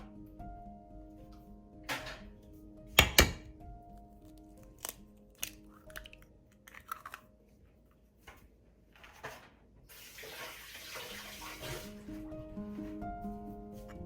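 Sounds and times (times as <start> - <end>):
soft background music: 0.0 - 14.0
tap water running: 9.9 - 12.2.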